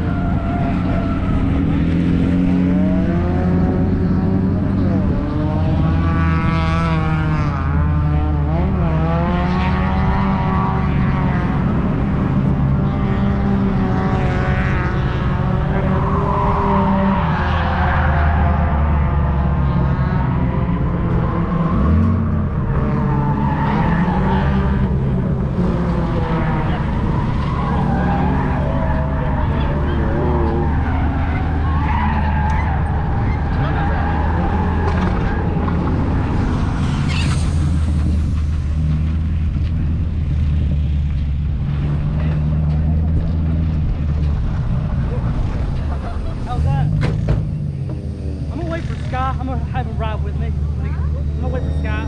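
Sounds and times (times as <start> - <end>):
car engine revving: 0.0 - 52.0
tyres squealing: 23.0 - 37.8.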